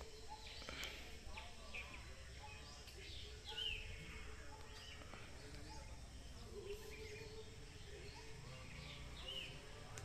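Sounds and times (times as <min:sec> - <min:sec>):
birds chirping: 0:00.0 - 0:10.0
steady low background noise: 0:00.0 - 0:10.0.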